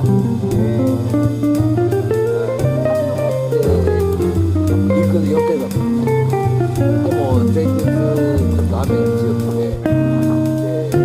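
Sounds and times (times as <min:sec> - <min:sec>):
bass guitar: 0:00.0 - 0:11.0
light drum beat: 0:00.0 - 0:11.0
plucked guitar melody: 0:00.0 - 0:11.0.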